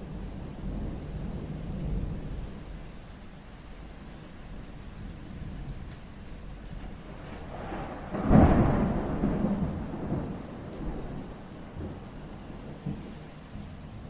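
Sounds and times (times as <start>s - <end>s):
thunder rumbling: 0.0s - 3.0s, 3.8s - 14.0s
rain hiss: 0.0s - 14.0s.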